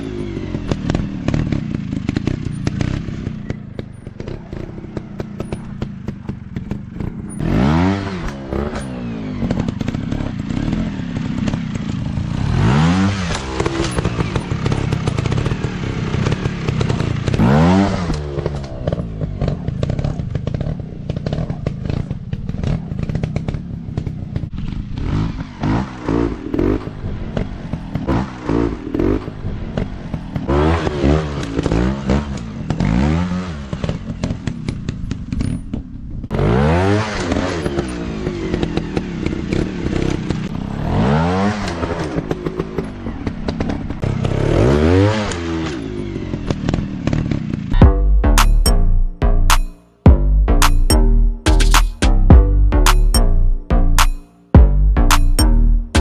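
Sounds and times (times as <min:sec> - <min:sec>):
dirt bike engines revving: 0:00.0 - 0:35.4
bikes clattering on rough ground: 0:00.0 - 0:36.4.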